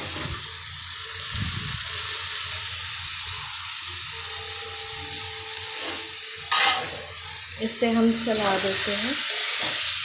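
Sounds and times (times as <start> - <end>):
food sizzling in hot oil: 0.0 - 10.0
metal spatula clanking on pan: 5.8 - 7.1.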